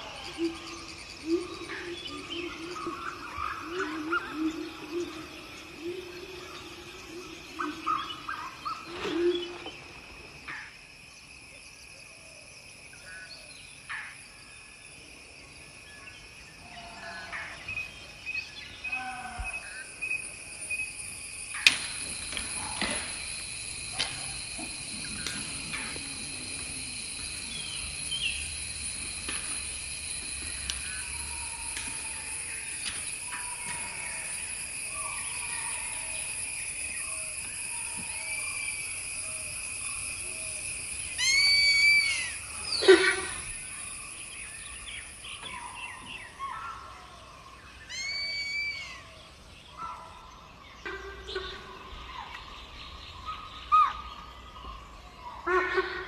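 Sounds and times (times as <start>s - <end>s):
bird calls: 0.0s - 10.8s, 16.0s - 56.0s
high insect drone: 0.0s - 56.0s
bird call sliding downward: 41.1s - 43.5s.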